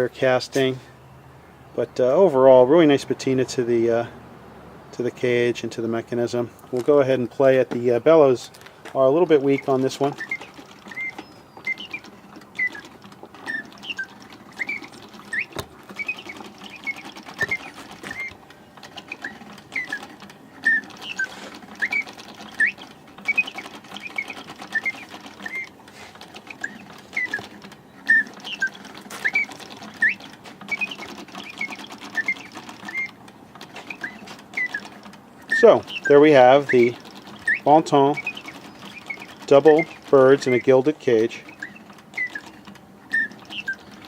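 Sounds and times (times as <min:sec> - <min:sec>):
clockwork mechanism whirring: 0:05.3 - 0:44.0
mechanical bird whistle chirping: 0:09.1 - 0:18.4, 0:19.1 - 0:25.8, 0:26.4 - 0:44.0.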